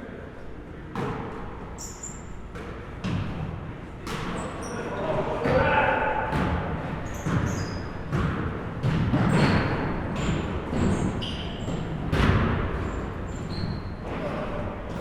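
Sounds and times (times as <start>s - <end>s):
sneakers squeaking: 0.9s - 15.0s
basketballs bouncing on gym floor: 2.5s - 4.4s, 5.4s - 15.0s.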